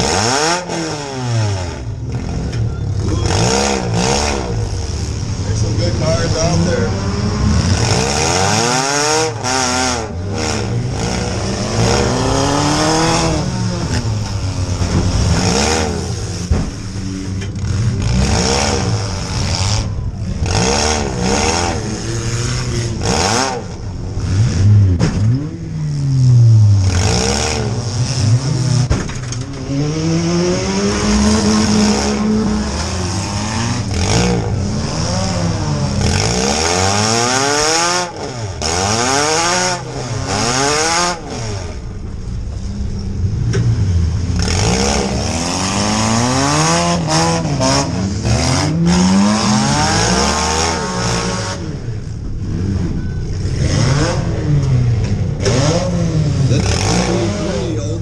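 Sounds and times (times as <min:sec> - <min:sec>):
car engine revving: 0:00.0 - 0:58.0
other engines running: 0:00.0 - 0:58.0
sharp knocks and bangs: 0:13.8 - 0:17.8, 0:24.8 - 0:25.5, 0:28.8 - 0:29.7.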